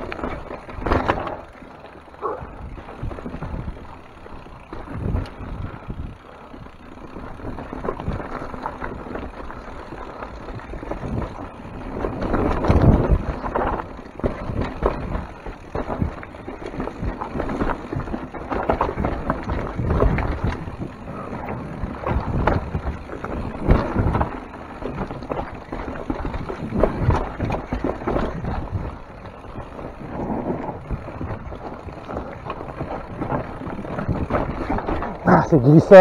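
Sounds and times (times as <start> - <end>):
bike rattling over rocks: 0.0 - 36.0
bike tyre rumble: 0.0 - 36.0
wind on microphone: 10.5 - 36.0.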